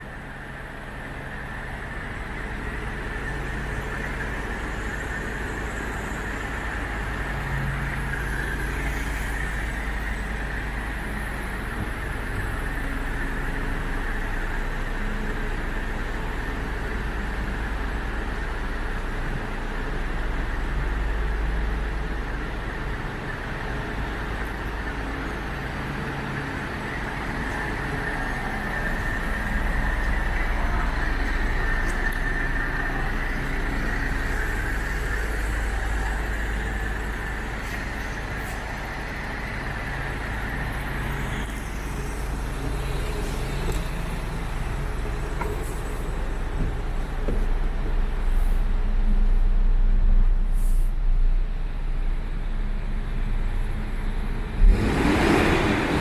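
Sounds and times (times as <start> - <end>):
truck diesel engine idling: 0.0 - 54.9.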